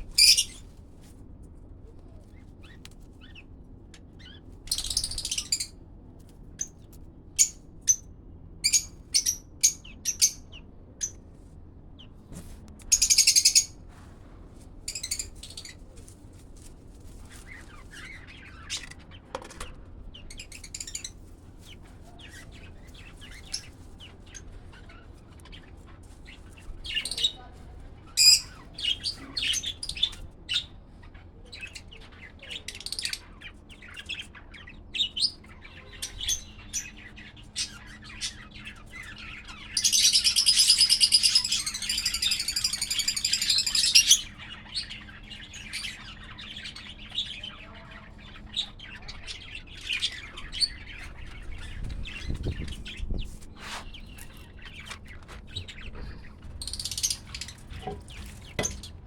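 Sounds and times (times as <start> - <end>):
high chattering calls: 0.0 - 0.6, 35.7 - 53.0, 55.6 - 57.8
parrots chirping: 0.0 - 0.7, 4.2 - 5.7, 12.9 - 13.8, 35.0 - 53.0, 55.7 - 58.9.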